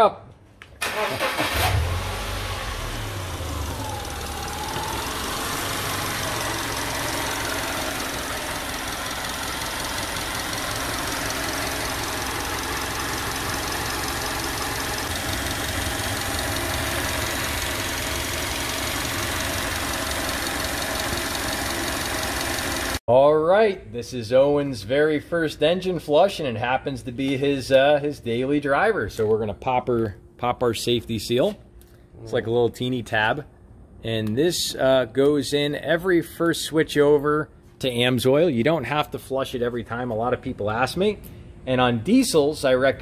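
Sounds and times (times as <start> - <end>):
car engine idling: 0.8 - 23.0.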